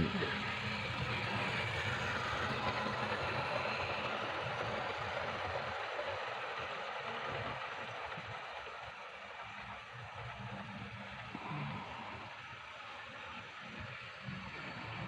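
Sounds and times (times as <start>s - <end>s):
model train running on rails: 0.0s - 15.0s.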